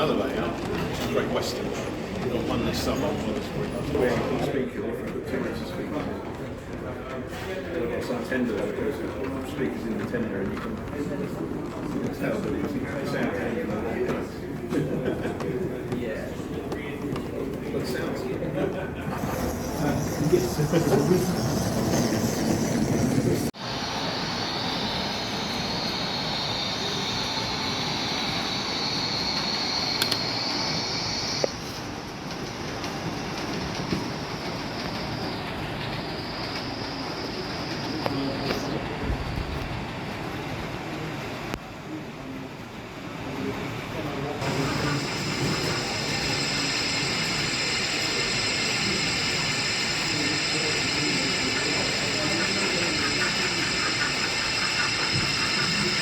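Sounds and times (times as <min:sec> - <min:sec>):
model locomotive whirring hiss: 0:00.0 - 0:04.5, 0:19.0 - 0:41.6, 0:43.2 - 0:56.0
murmur of chatter: 0:00.0 - 0:56.0
hall noise: 0:19.0 - 0:39.1, 0:44.4 - 0:56.0.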